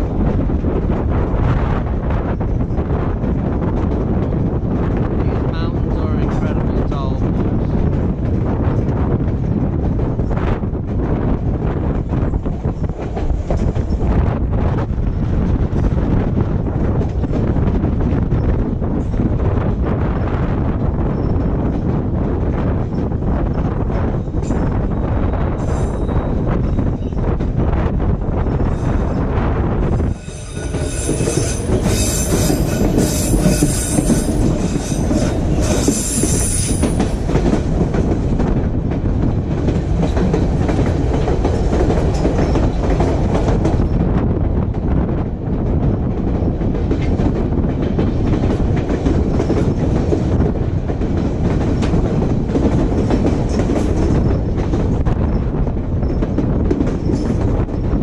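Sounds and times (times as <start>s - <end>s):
train rumbling on rails: 0.0s - 58.0s
high-pitched wheel squeal: 30.0s - 37.0s.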